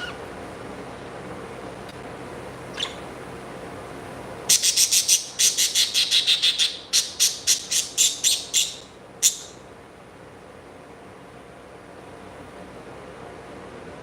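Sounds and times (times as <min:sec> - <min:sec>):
bird chirping: 0:02.7 - 0:03.0, 0:04.5 - 0:09.6.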